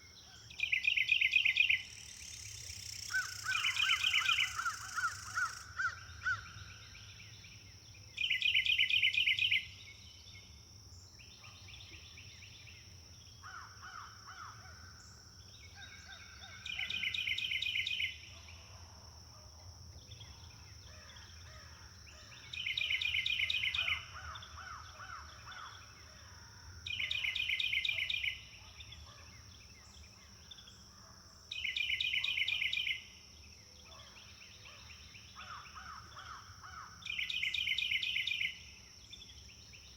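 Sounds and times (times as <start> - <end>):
birds calling softly: 0.0 - 6.4
songbird trilling: 0.3 - 6.4.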